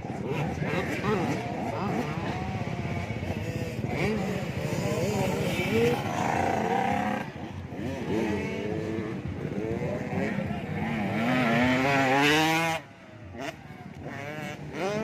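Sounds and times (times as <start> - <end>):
motocross bikes revving: 0.0 - 15.0.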